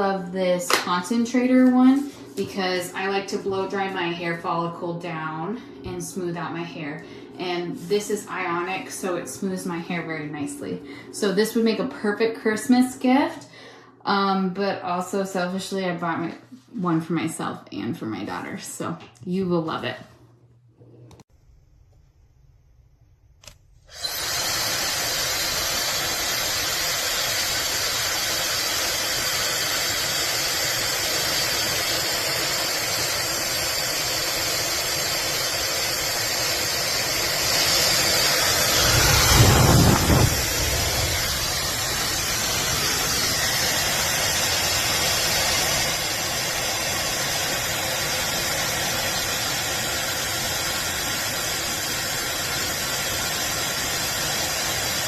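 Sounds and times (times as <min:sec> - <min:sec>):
hair dryer blowing: 0:00.0 - 0:13.5, 0:23.4 - 0:55.0
airflow rumble on microphone: 0:36.8 - 0:47.1.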